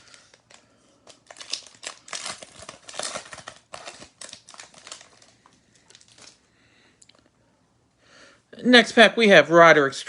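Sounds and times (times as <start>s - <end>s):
card pack wrapper crinkling: 0.0s - 6.4s.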